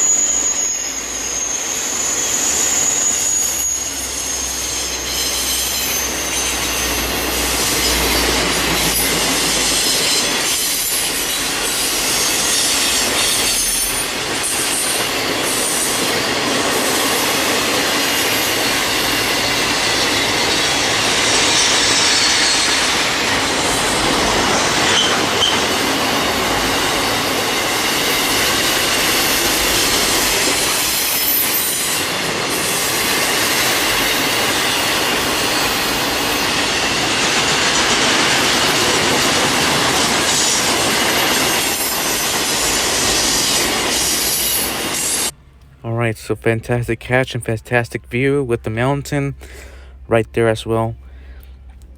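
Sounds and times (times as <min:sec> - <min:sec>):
metallic wheel squeal: 0:00.0 - 0:37.0
freight train rumbling: 0:00.0 - 0:51.9.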